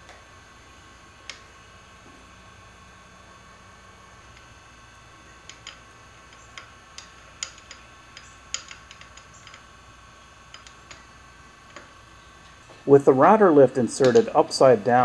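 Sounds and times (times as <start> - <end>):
faint high hum: 0.0 - 15.0
small metal parts clicking: 5.5 - 9.7, 10.5 - 11.0.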